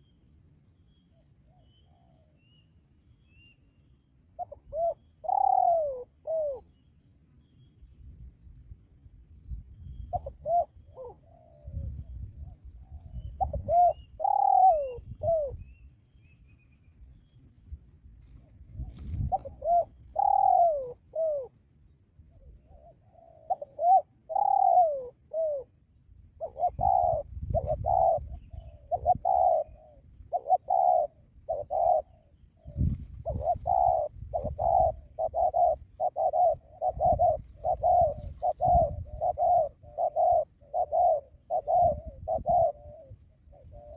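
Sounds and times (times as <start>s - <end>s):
dove cooing: 4.3s - 6.7s, 10.0s - 15.8s, 18.2s - 21.6s, 22.3s - 25.8s, 26.4s - 43.9s.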